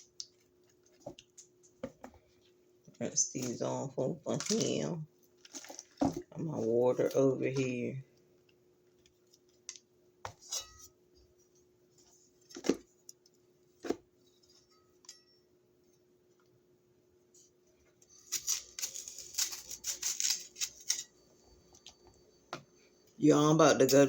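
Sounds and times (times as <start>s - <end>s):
faint steady hum: 0.0s - 24.0s
rustling and clattering: 5.4s - 6.8s.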